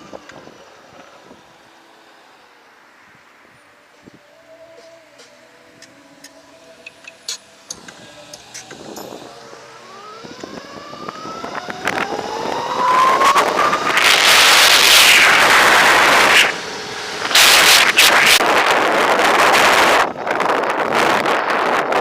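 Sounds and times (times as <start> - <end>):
wind noise on microphone: 0.0 - 1.7, 6.9 - 22.0
electric motorbike motor whining: 0.0 - 22.0.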